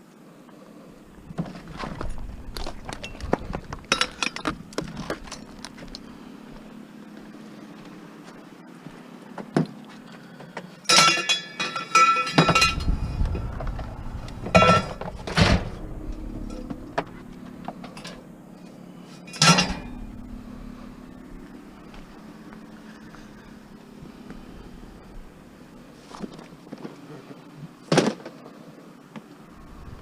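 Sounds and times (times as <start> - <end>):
metal scrap clanking: 1.2 - 6.0, 10.9 - 24.0.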